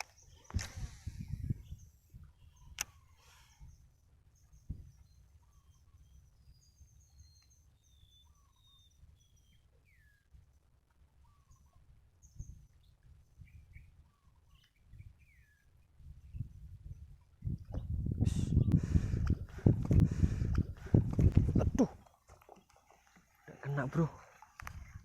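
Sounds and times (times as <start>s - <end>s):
wind rumble on microphone: 0.0s - 3.0s, 4.4s - 5.7s, 12.2s - 22.0s, 24.6s - 25.0s
birds chirping and whistling: 0.0s - 10.3s, 11.3s - 21.9s.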